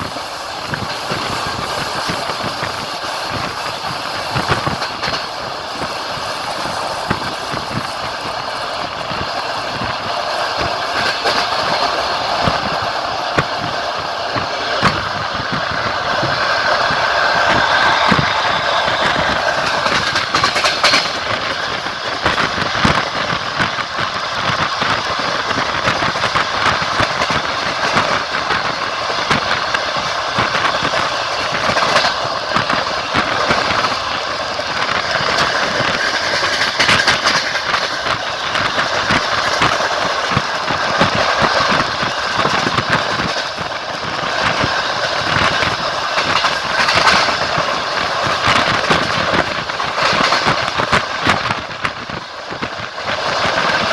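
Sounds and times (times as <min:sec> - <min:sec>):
train rumbling on board: 0:00.0 - 0:53.9
wheels clacking over rail joints: 0:00.0 - 0:53.9.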